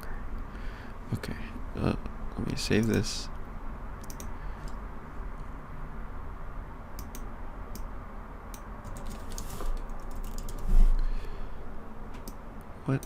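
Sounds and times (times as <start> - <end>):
low steady hum: 0.0 - 13.0
keyboard keys clicking: 8.8 - 10.6.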